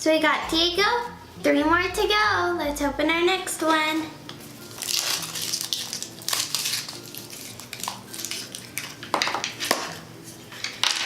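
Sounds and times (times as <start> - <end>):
foil wrapper crinkling and tearing: 4.5 - 10.0.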